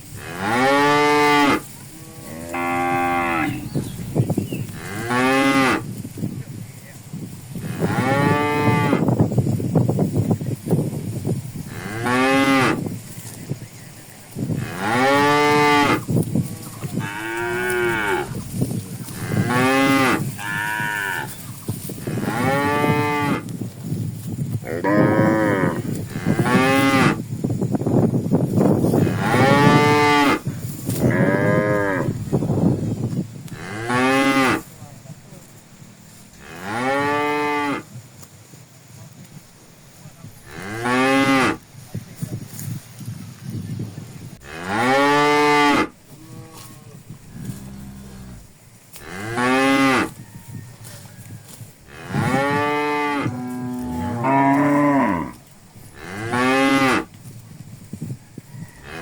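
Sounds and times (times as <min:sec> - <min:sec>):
cattle mooing: 0:16.6 - 0:18.4, 0:19.2 - 0:21.4, 0:51.9 - 0:55.4.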